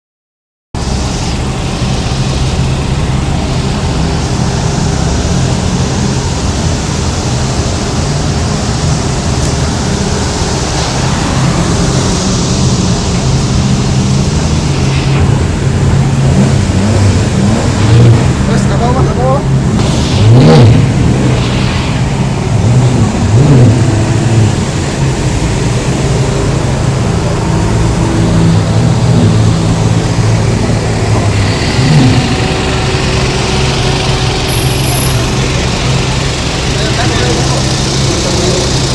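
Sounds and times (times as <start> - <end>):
car engine humming: 0.8 - 38.9
loud even hiss: 18.6 - 38.9.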